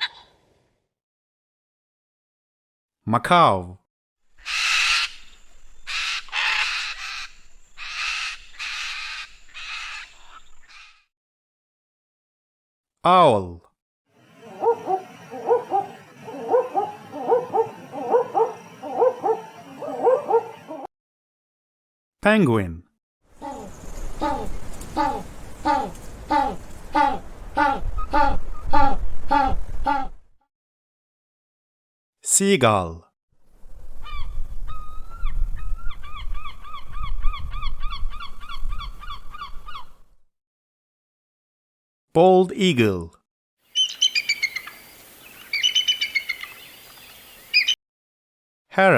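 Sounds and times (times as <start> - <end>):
gull crying: 14.2 - 20.9, 23.4 - 30.2
owl hooting: 14.2 - 20.9, 23.4 - 30.2, 43.7 - 44.8, 45.5 - 46.6.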